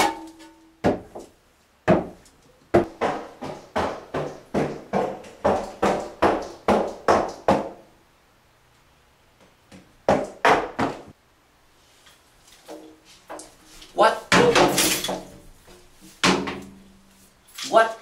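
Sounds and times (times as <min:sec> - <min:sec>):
rapid hard knocks with ringing: 0:14.3 - 0:15.3, 0:16.2 - 0:16.8.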